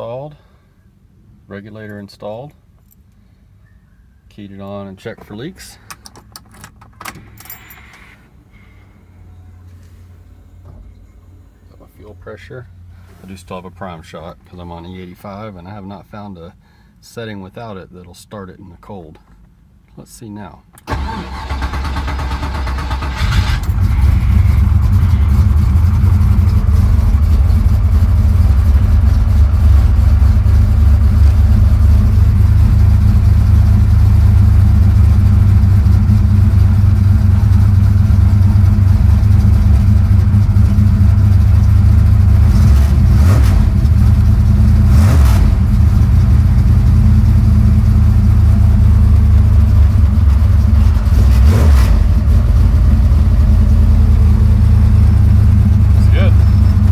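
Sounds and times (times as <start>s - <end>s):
car engine idling: 20.9s - 56.9s.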